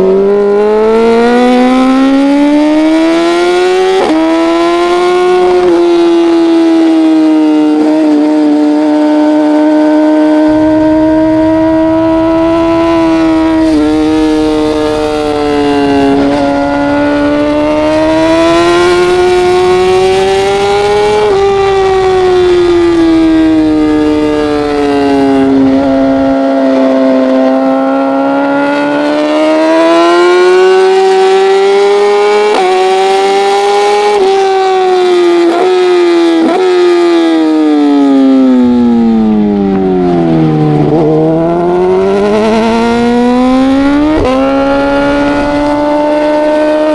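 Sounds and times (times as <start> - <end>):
racing motorcycle engine: 0.0 - 46.9.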